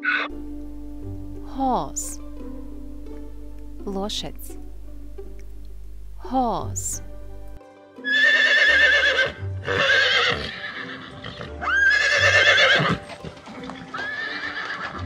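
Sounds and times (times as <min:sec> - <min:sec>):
horse whinnying: 0:00.0 - 0:00.3, 0:08.0 - 0:15.0.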